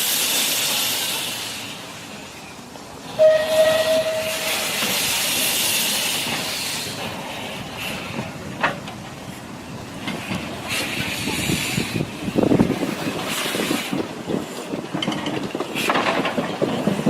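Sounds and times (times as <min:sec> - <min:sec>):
steam hiss bursts: 0:00.0 - 0:02.2, 0:03.1 - 0:08.4
train wheels clattering: 0:03.1 - 0:17.0.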